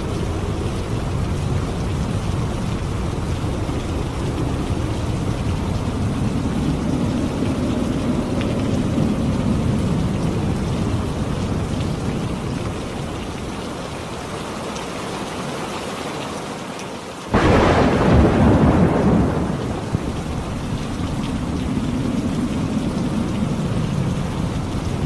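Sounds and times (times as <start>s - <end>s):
steady rain: 0.0s - 25.0s
loud thunderclap: 17.3s - 23.8s.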